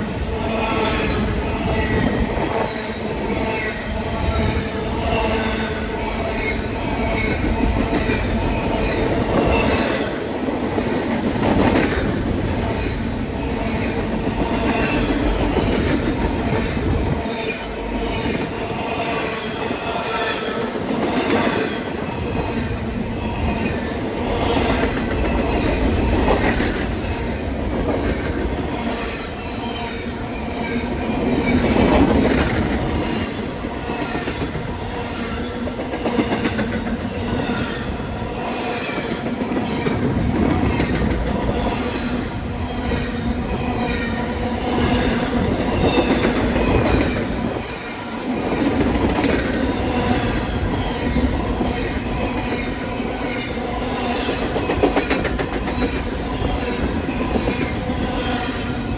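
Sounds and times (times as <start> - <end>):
train wheels clacking over rail joints: 48.4 - 58.1.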